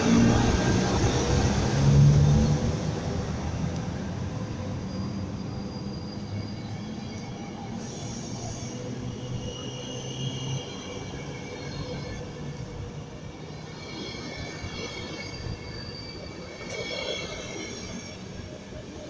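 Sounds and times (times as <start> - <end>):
train wheels rumbling on rails: 0.0 - 19.0
high wheel squealing: 4.4 - 18.5.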